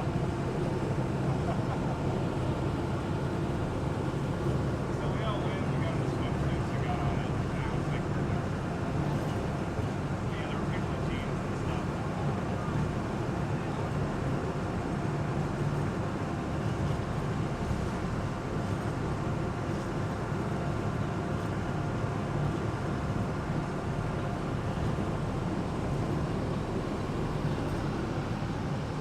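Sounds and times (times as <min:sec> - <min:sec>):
boat engine droning: 0:23.3 - 0:29.0.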